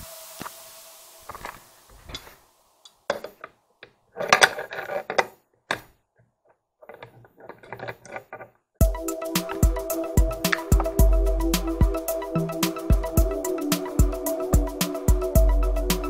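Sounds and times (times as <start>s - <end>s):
metal tools clinking: 6.9s - 8.4s.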